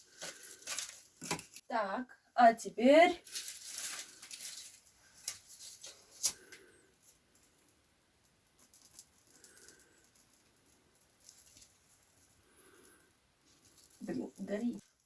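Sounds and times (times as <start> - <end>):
match striking and flaring: 3.2 - 7.8.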